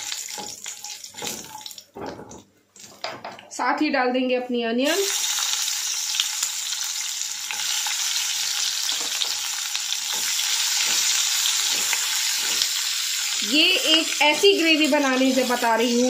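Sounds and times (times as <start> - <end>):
cashews and onion sizzling in oil: 0.0 - 2.1, 4.9 - 16.0
spatula stirring in pan: 9.9 - 15.9.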